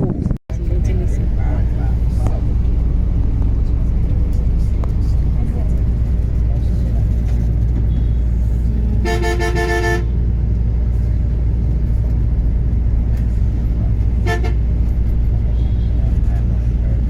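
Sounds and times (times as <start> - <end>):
vehicle engine and road rumble: 0.0 - 17.0
vehicle horn toots: 9.0 - 10.2, 14.2 - 14.8, 15.4 - 16.2.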